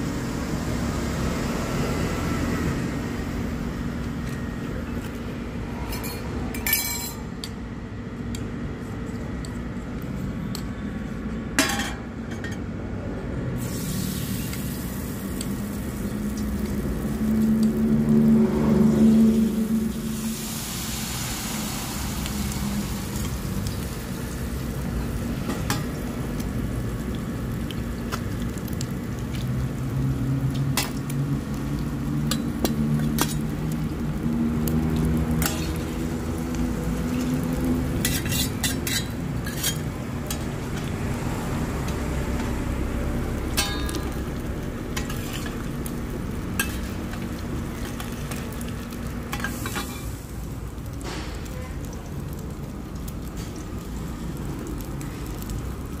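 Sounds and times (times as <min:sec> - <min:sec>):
batter sizzling in oil: 0:00.0 - 0:05.8, 0:13.5 - 0:56.0
metal spatulas scraping pan: 0:38.0 - 0:40.4.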